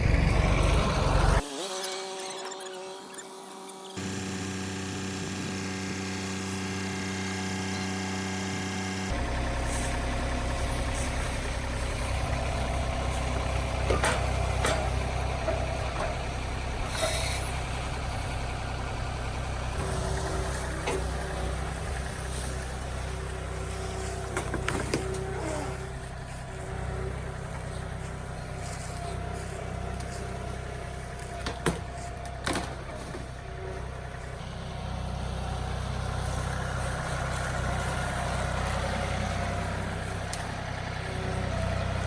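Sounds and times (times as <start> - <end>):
engine running: 0.0 - 42.0.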